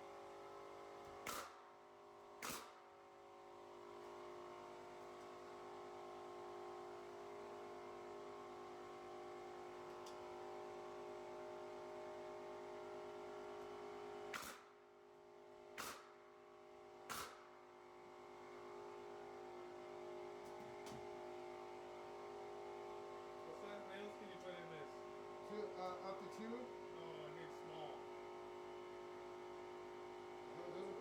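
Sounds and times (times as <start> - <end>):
pneumatic nail gun shots: 1.1 - 1.7, 2.4 - 3.0, 14.3 - 14.8, 15.7 - 16.3, 17.0 - 17.6.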